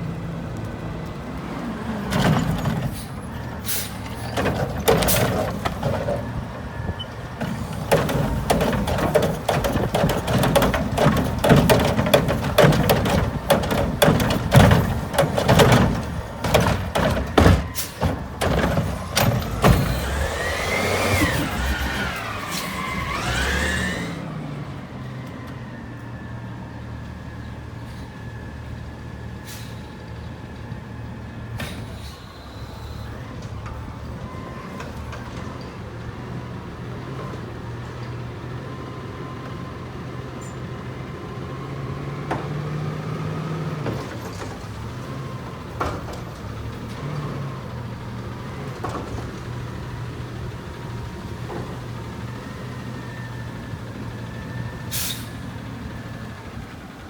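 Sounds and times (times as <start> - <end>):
truck engine running: 2.0 - 24.2
yard waste tumbling and clattering: 4.0 - 22.1
hydraulic whine: 4.1 - 24.3.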